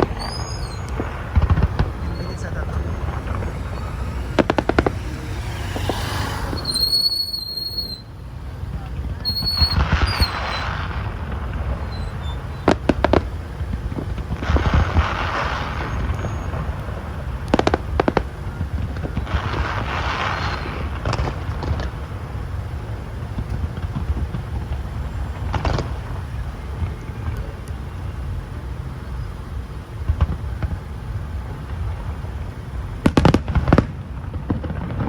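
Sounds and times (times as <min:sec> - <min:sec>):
low rumble: 0:00.0 - 0:18.2
fireworks bangs: 0:00.0 - 0:35.0
fireworks hissing and crackling: 0:00.0 - 0:35.0.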